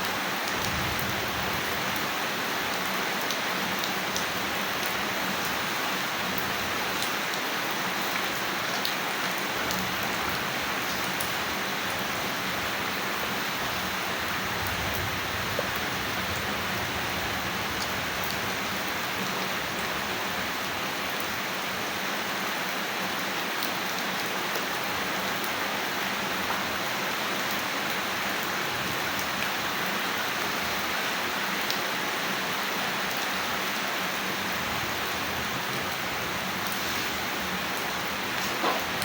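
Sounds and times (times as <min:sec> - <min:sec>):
steady rain falling: 0:00.0 - 0:39.0
faint raindrop ticks: 0:31.6 - 0:31.8.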